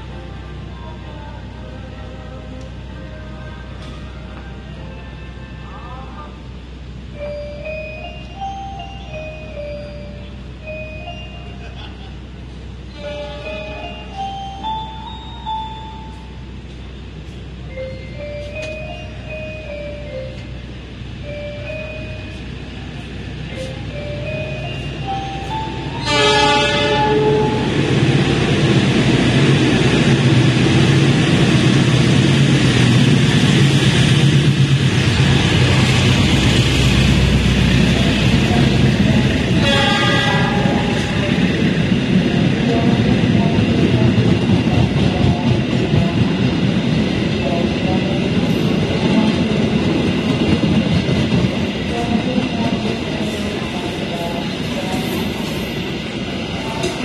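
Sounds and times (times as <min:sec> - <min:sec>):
train engine and wheels humming: 0:00.0 - 0:57.0
train horn blast: 0:12.9 - 0:13.7, 0:26.0 - 0:27.7, 0:39.6 - 0:41.1.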